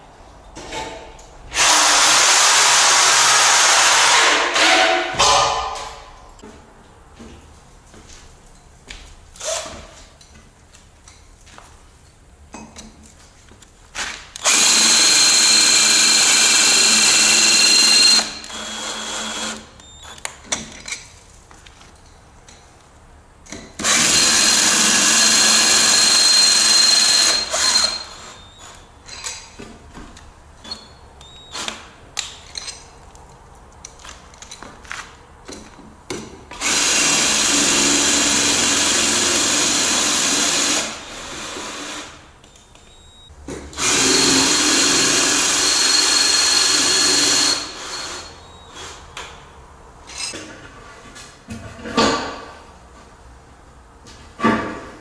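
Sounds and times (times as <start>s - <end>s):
power drill running: 1.5s - 4.8s, 14.4s - 19.7s, 23.8s - 28.7s, 36.6s - 42.2s, 43.8s - 49.0s.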